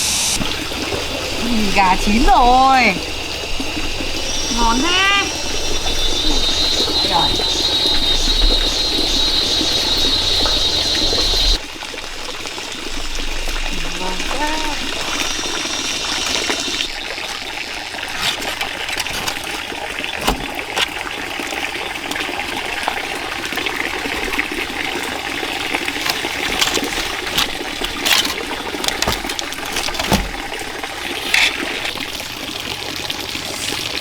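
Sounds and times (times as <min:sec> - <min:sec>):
running water trickling: 0:00.0 - 0:34.0.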